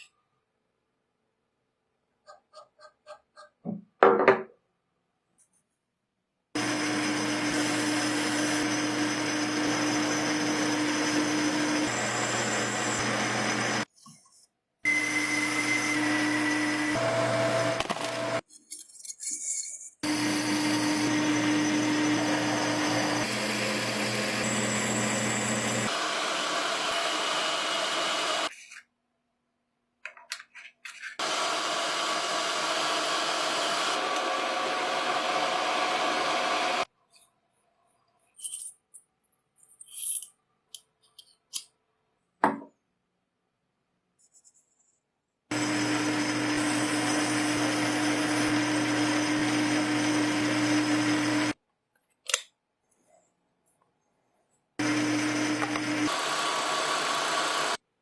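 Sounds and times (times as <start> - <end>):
power tool motor running: 6.6 - 13.9, 14.9 - 18.4, 20.0 - 28.5, 31.2 - 36.9, 45.5 - 51.6, 54.8 - 57.8.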